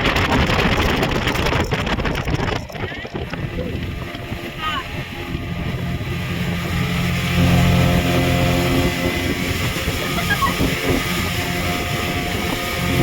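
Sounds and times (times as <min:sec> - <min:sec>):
rushing water: 0:00.0 - 0:13.0
speedboat engine running: 0:00.0 - 0:13.0
wind noise: 0:00.0 - 0:13.0.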